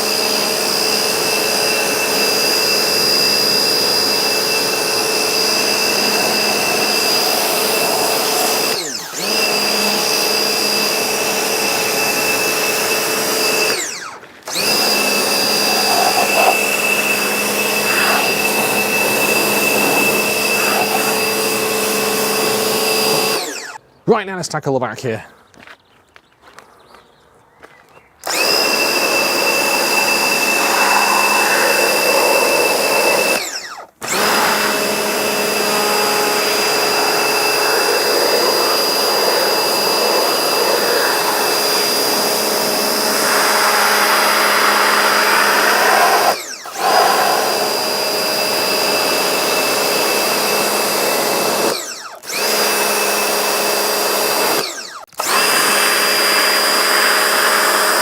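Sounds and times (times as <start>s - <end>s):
pressure washer spraying: 14.5s - 23.5s, 28.3s - 33.5s, 34.1s - 51.6s.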